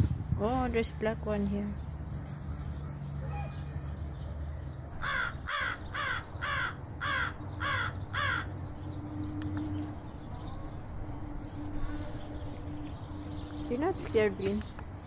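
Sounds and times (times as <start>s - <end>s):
crow cawing: 5.0s - 8.5s.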